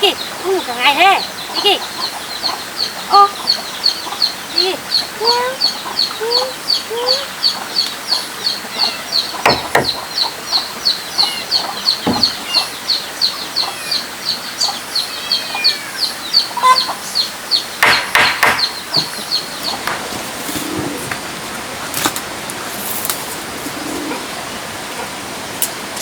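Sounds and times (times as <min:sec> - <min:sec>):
chick peeping: 0:00.0 - 0:25.4
other birds calling: 0:00.0 - 0:26.0
knocks: 0:09.4 - 0:10.1, 0:12.0 - 0:12.4, 0:17.8 - 0:20.0.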